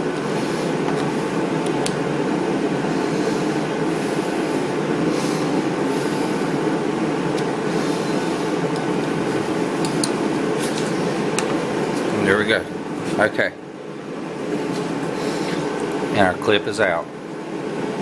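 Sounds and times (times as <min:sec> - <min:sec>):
machinery droning: 0:00.0 - 0:18.0
screwdriver clicking on metal: 0:09.8 - 0:10.2.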